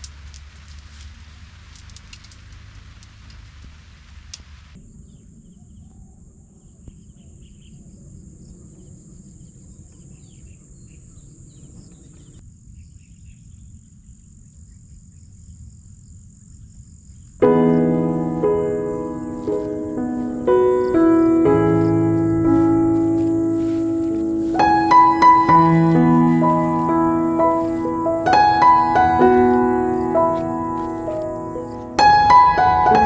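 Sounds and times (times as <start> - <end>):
piano music: 17.4 - 33.0.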